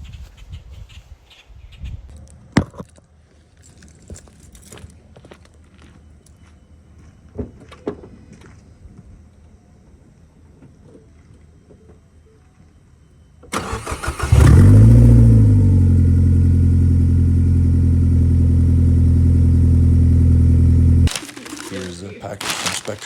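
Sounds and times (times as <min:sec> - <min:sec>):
starter cranking: 0:13.6 - 0:14.9
car engine idling: 0:13.6 - 0:21.1.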